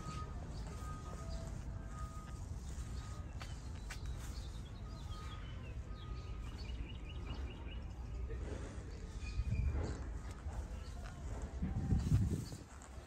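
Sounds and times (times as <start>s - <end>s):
small birds chirping: 0.0s - 11.5s
steady low rumble: 0.0s - 13.0s.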